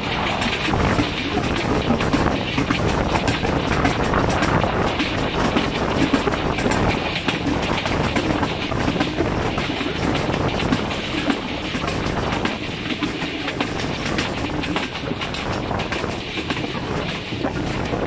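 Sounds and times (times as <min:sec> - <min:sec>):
train coaches rumbling: 0:00.0 - 0:18.0
wheels clicking over track: 0:00.0 - 0:18.0.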